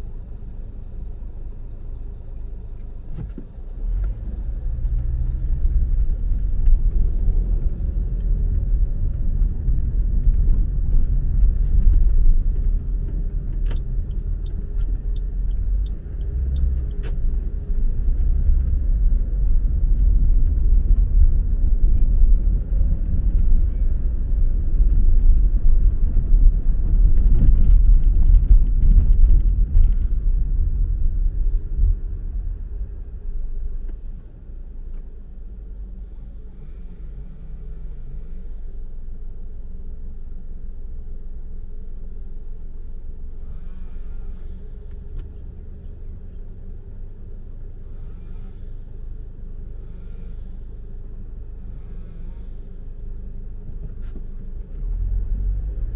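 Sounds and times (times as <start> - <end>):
car road and engine rumble: 0.0 - 55.9
light ticks: 11.5 - 17.4, 44.8 - 45.5.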